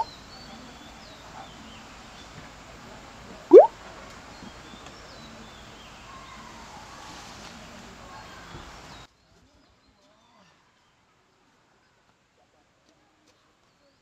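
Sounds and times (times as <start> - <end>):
birds chirping: 0.0 - 2.4
outdoor background hiss: 0.0 - 9.8.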